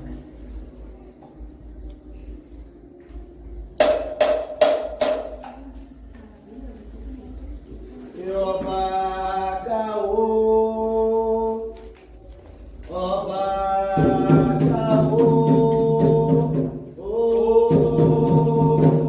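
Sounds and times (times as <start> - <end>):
lead voice singing: 8.1 - 11.9, 12.8 - 19.0
chorus of voices singing: 8.2 - 11.9, 12.8 - 19.0.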